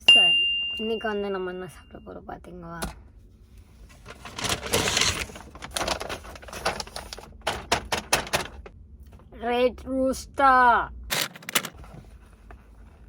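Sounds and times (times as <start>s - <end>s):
food packaging rustling: 3.9s - 8.7s.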